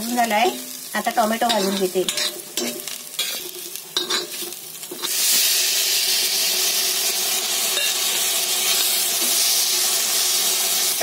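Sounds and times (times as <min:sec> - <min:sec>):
tomatoes sizzling in hot oil: 0:00.0 - 0:11.0
metal spatula scraping a pan: 0:01.4 - 0:05.5.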